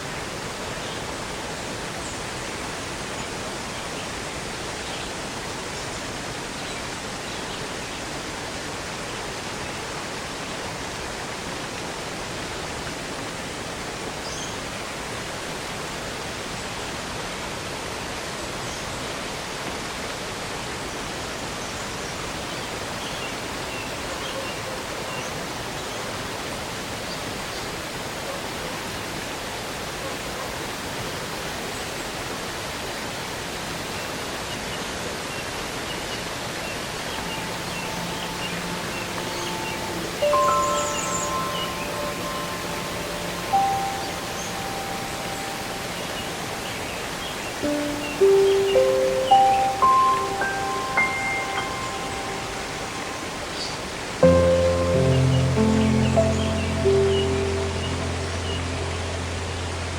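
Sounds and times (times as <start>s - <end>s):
waterfall rushing: 35.6s - 59.9s.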